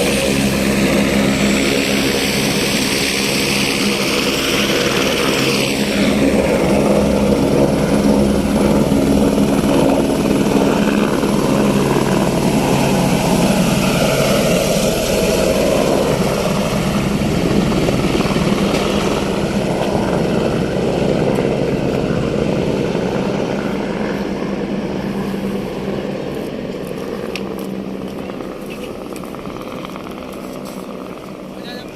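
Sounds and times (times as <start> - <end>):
helicopter turbine and rotor: 0.0 - 31.9.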